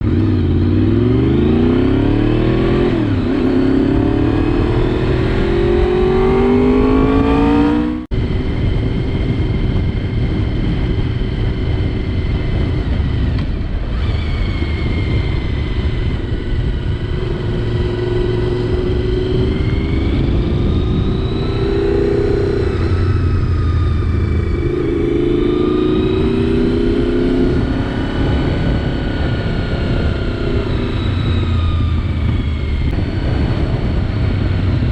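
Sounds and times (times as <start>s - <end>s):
motorcycle engine accelerating: 0.0s - 34.9s
wind noise: 0.0s - 34.9s.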